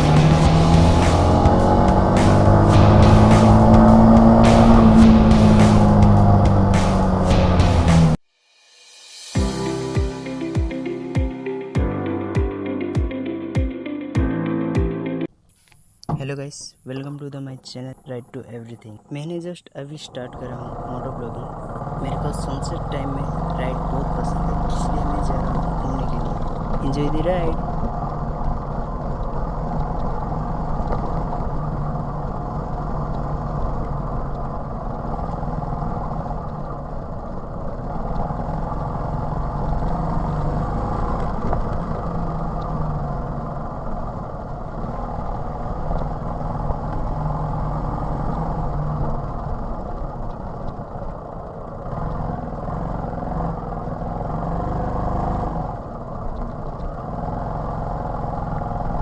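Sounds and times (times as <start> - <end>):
moped engine running: 0.0 - 8.2, 20.0 - 59.0.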